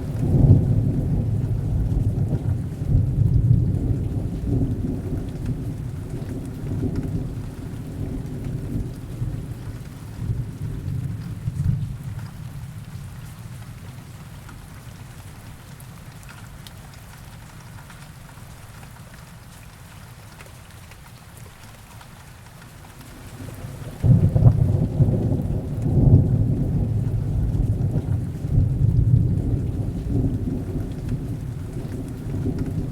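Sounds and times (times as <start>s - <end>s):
loud thunderclap: 0.0s - 11.8s, 23.4s - 32.9s
low thunder rumble: 0.0s - 13.1s, 23.2s - 32.9s
heavy rain falling: 0.0s - 32.9s.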